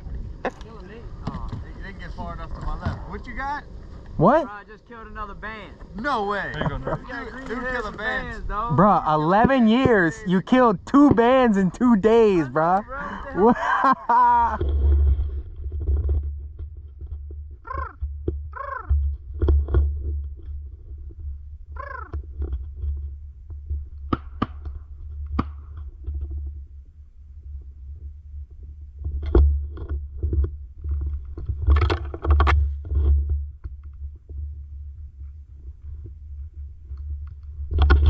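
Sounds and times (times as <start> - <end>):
steady low rumble: 0.0 - 17.6.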